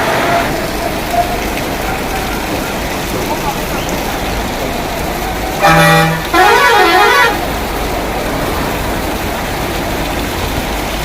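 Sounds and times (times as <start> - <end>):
rain hiss: 0.0 - 11.0
traffic: 0.0 - 11.0
vehicle horn honking: 5.6 - 7.5.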